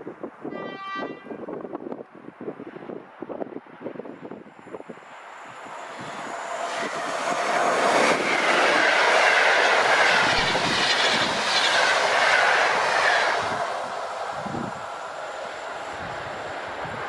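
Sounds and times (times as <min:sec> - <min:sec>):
train wheels on rails: 0:04.0 - 0:17.0.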